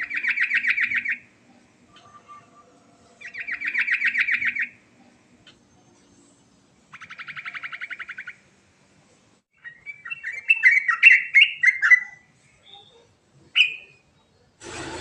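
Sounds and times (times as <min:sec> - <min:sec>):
bird singing trills: 0:00.0 - 0:01.3, 0:01.9 - 0:06.2, 0:06.9 - 0:08.4, 0:09.6 - 0:14.5.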